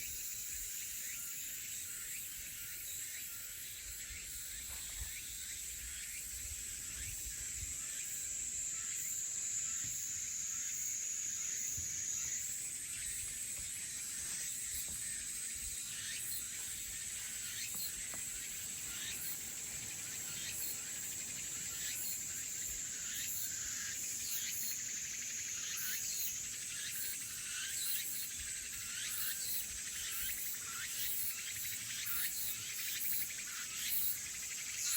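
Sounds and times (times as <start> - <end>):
crickets and cicadas trilling: 0.0 - 34.9
short insect chirps: 0.1 - 34.9.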